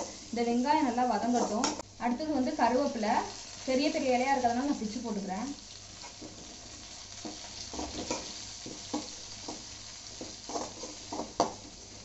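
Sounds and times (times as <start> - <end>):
shallots sizzling in hot oil: 0.0 - 12.0
spatula knocking on pan: 7.2 - 11.6
metal spatula scraping pan: 10.4 - 11.5.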